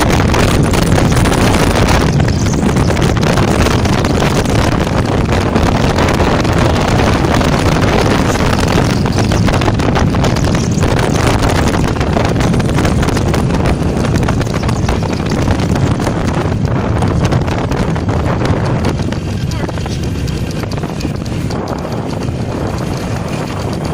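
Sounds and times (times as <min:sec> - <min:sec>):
motorcycle engine running: 0:00.0 - 0:23.9
wind noise on microphone: 0:00.0 - 0:23.9.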